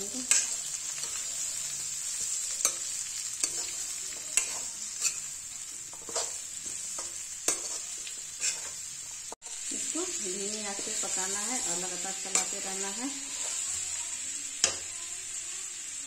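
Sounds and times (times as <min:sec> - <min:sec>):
food sizzling in oil: 0:00.0 - 0:16.0
metal ladle scraping pan: 0:02.6 - 0:08.9.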